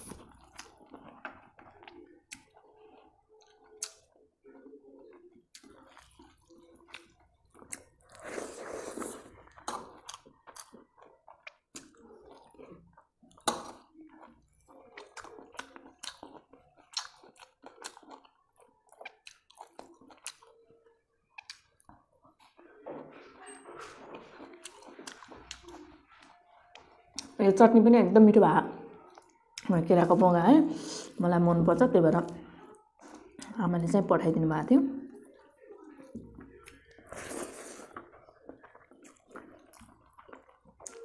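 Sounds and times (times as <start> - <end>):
chewing and wet mouth smacks: 0.0 - 8.4, 9.0 - 22.6, 23.8 - 27.4, 29.0 - 29.7, 35.1 - 41.0.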